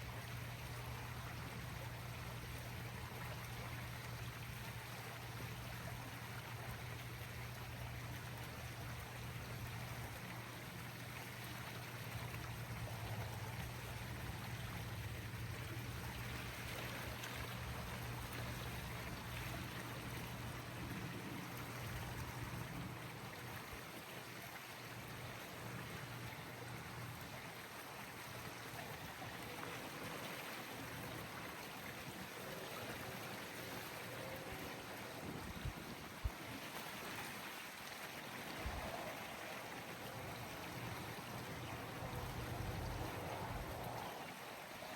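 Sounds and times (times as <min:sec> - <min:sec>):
running water rushing: 0:00.0 - 0:44.9.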